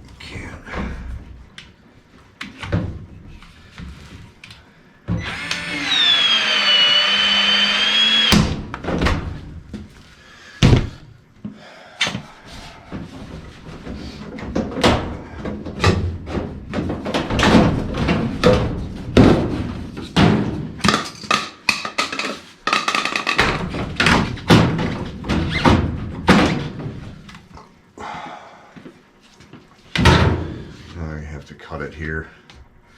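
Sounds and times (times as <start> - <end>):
power tool motor whining: 5.2 - 8.5
sheet metal knocks and clanks: 14.4 - 27.0.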